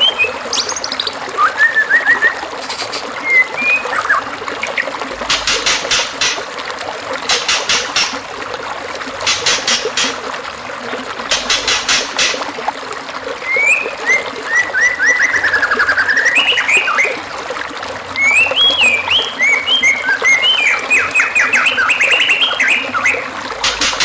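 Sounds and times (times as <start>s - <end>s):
songbird singing: 0.0s - 4.9s, 13.5s - 17.2s, 18.2s - 23.3s
stream trickling: 0.0s - 24.0s.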